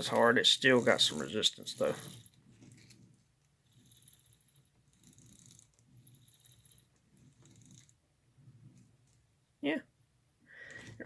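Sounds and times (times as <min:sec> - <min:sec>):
toy locomotive gears whirring: 0:00.0 - 0:08.0.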